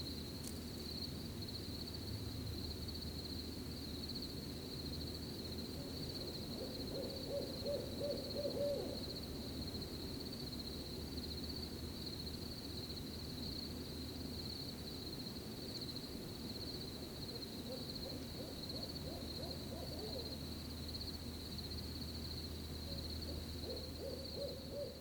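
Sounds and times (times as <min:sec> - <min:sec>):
cricket chirping: 0:00.0 - 0:25.0
owl hooting: 0:05.8 - 0:09.1, 0:17.6 - 0:20.3, 0:22.9 - 0:25.0.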